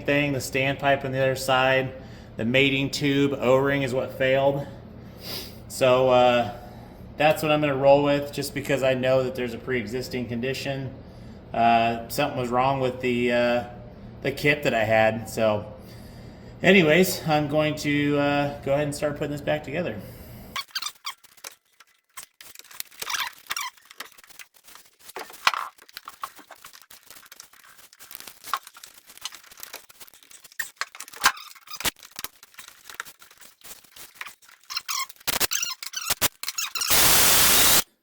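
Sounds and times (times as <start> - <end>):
tools and engine parts clicking: 28.4 - 36.9
loud hiss-like burst: 36.9 - 37.9.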